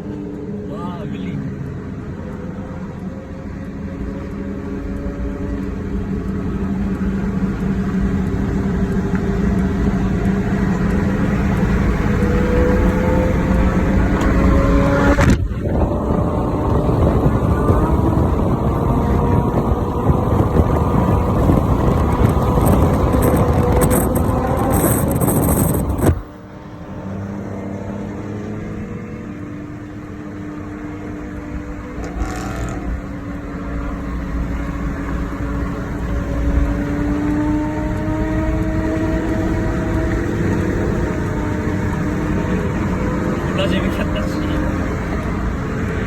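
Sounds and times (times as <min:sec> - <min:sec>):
motorcycle engine accelerating: 0:00.0 - 0:46.0
wind and road noise: 0:00.0 - 0:46.0.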